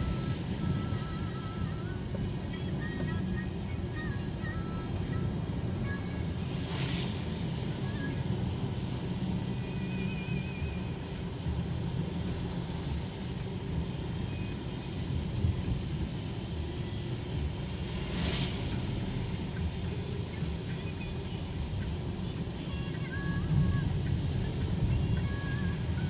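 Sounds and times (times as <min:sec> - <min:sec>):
car engine and road rumble: 0:00.0 - 0:26.0
brief hiss: 0:06.6 - 0:08.2, 0:17.8 - 0:26.0.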